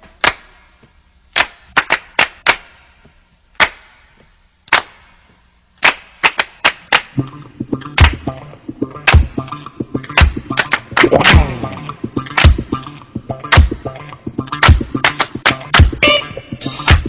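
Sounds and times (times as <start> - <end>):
sharp snaps: 1.3 - 2.9, 3.6 - 5.1, 5.8 - 13.8.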